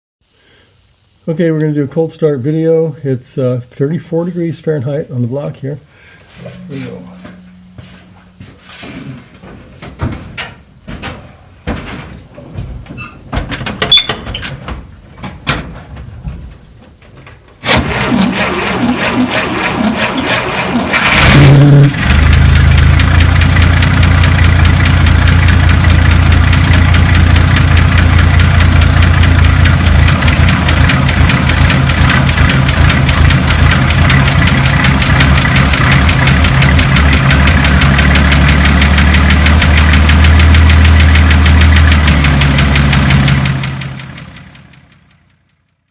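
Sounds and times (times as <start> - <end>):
starter motor cranking: 17.7 - 44.0
car engine running: 19.2 - 45.7.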